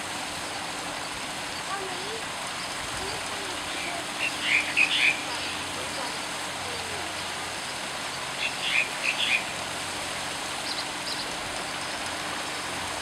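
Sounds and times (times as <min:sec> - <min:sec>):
steady outdoor hiss: 0:00.0 - 0:13.0
bird chirping: 0:04.2 - 0:06.2, 0:08.4 - 0:09.5.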